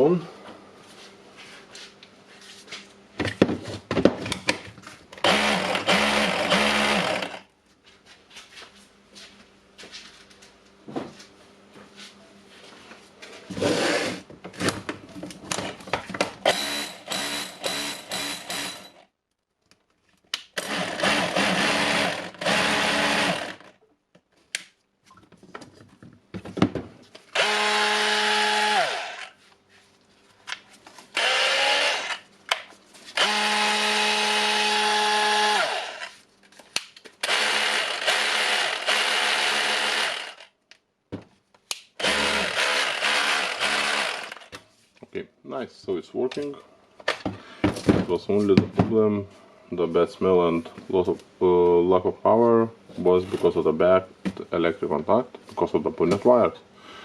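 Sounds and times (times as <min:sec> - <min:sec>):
cordless drill motor spinning: 0:05.2 - 0:07.4, 0:16.5 - 0:18.9, 0:20.6 - 0:23.7, 0:27.3 - 0:29.4, 0:31.2 - 0:32.2, 0:33.2 - 0:36.1, 0:37.2 - 0:40.5, 0:42.0 - 0:44.5.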